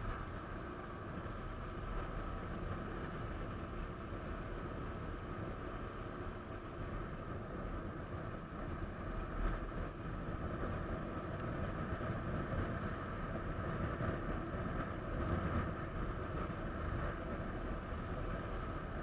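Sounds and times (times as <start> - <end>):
wind on microphone: 6.6 - 19.0.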